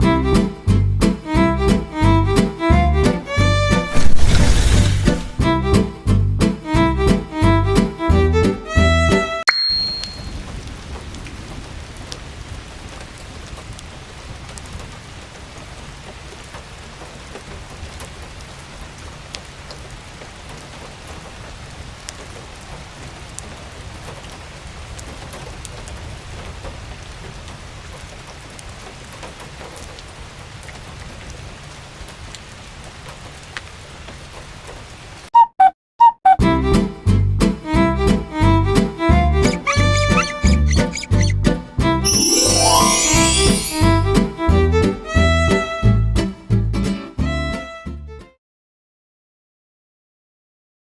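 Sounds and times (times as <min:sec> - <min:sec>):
steady rain falling: 0:10.3 - 0:35.3
raindrop ticks: 0:12.9 - 0:15.1, 0:19.2 - 0:31.4, 0:32.2 - 0:32.5.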